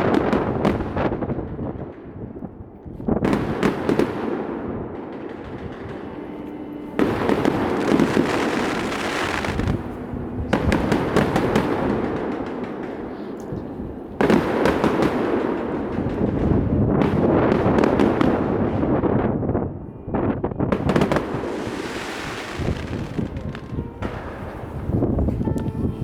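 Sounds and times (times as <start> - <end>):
fireworks shells bursting: 3.2 - 18.8, 20.7 - 25.4.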